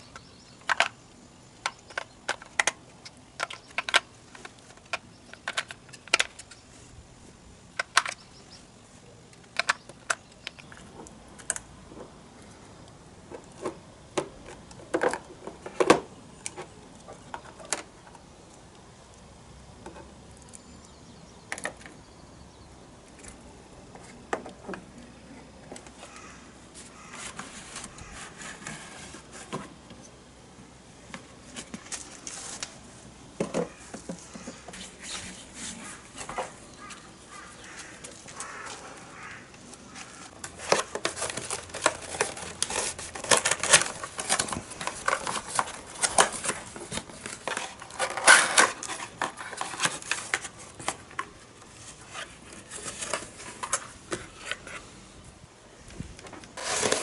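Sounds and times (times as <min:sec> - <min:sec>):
small objects clicking and rustling: 0:00.0 - 0:01.0, 0:01.6 - 0:06.6, 0:07.7 - 0:08.3, 0:09.3 - 0:11.7, 0:36.1 - 0:54.8.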